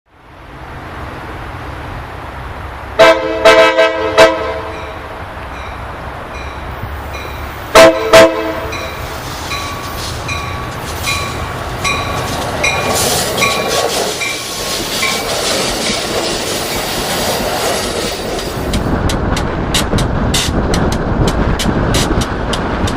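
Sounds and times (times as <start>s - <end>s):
train rumble and rush: 0.1s - 22.9s
train horn blasts: 3.0s - 5.1s, 7.7s - 9.0s
even clicking of wheels: 18.3s - 22.9s.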